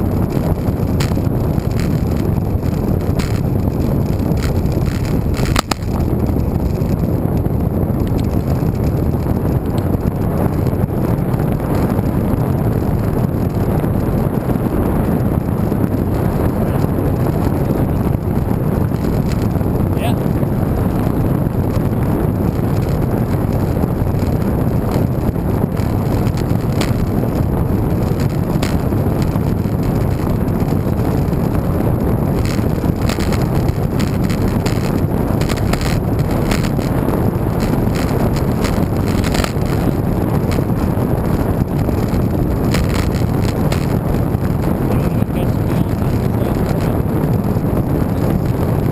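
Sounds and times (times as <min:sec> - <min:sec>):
wind buffeting microphone: 0:00.0 - 0:48.9
bike clicks and knocks: 0:00.4 - 0:07.0, 0:25.7 - 0:27.4, 0:28.0 - 0:31.2, 0:32.4 - 0:37.0, 0:37.6 - 0:40.7, 0:41.7 - 0:44.0.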